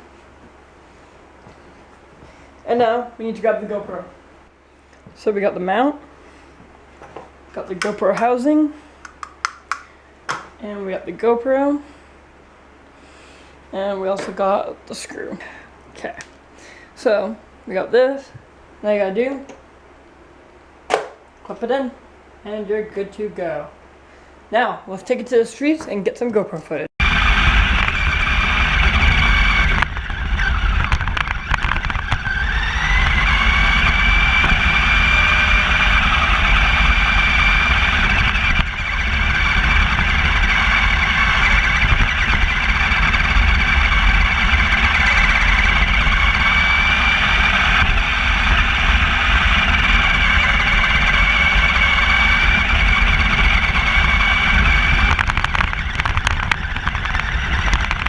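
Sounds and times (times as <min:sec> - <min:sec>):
electric motor whine: 0:27.0 - 0:58.0.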